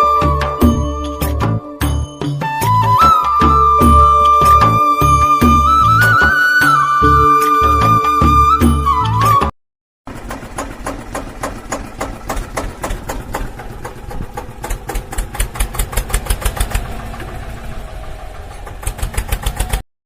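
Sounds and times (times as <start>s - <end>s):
small motor ticking clatter: 10.1s - 19.8s.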